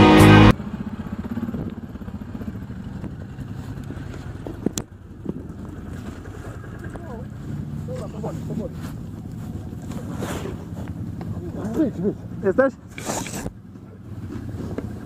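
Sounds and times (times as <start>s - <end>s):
music: 0.0s - 0.5s
motorcycle engine rumbling: 0.0s - 15.0s.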